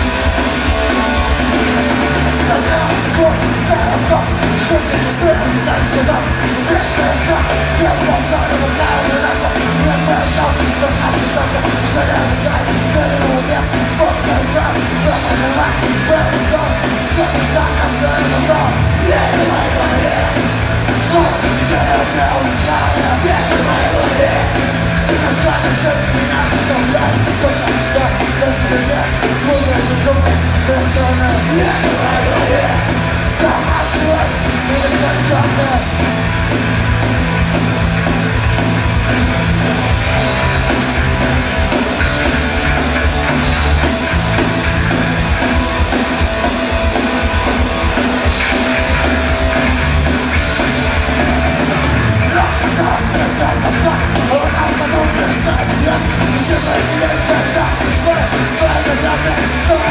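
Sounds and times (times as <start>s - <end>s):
rock band playing live: 0.0s - 59.9s
person yelling singing: 2.4s - 35.9s, 52.2s - 59.9s.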